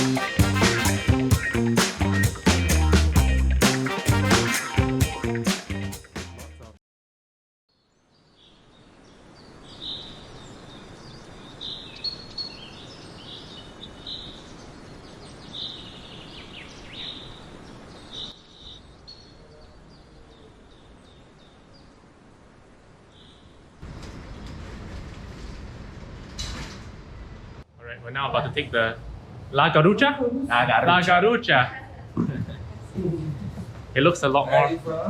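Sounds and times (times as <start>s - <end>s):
steady outdoor noise: 8.6s - 35.0s.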